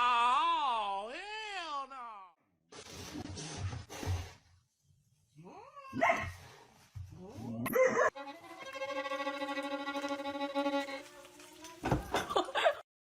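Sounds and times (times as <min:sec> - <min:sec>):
dog barking: 0:06.0 - 0:06.4
music with long held notes: 0:08.2 - 0:11.4.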